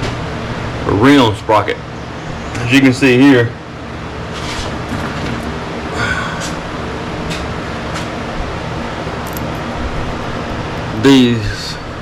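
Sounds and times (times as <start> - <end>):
steady mechanical hum: 0.0 - 12.0
light clicks of parts handled: 9.2 - 9.7.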